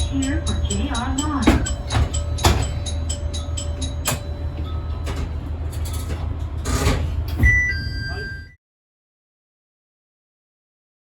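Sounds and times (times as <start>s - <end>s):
diesel railcar rumble: 0.0s - 8.6s
brief high tone: 7.4s - 8.6s.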